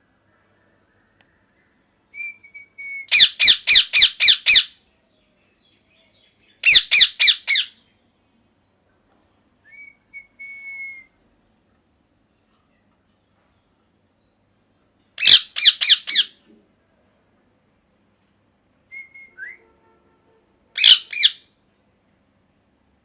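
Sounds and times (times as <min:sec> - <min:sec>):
parakeet whistle: 0:02.8 - 0:04.7, 0:06.6 - 0:07.7, 0:15.2 - 0:16.3, 0:20.8 - 0:21.4
parakeet harsh calls: 0:03.1 - 0:04.7, 0:06.6 - 0:07.8, 0:15.2 - 0:16.4, 0:20.8 - 0:21.4.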